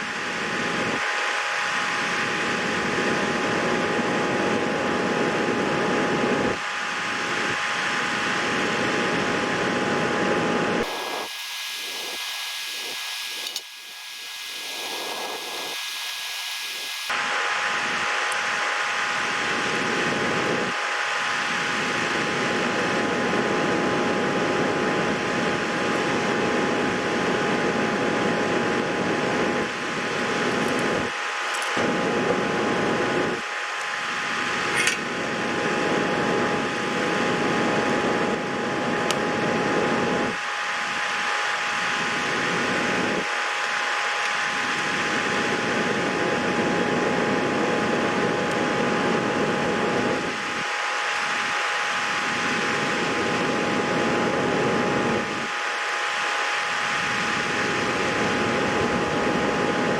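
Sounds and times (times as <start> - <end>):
high whine: 0.0 - 59.9
small clicks: 10.9 - 13.9.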